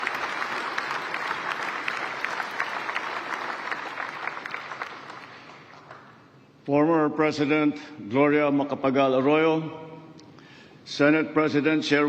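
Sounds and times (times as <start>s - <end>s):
audience applause: 0.0s - 6.2s.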